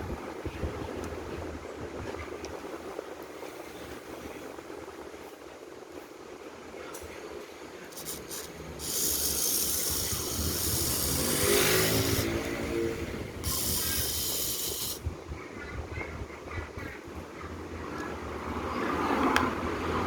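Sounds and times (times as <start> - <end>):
bursts of hissing: 7.9 - 15.1.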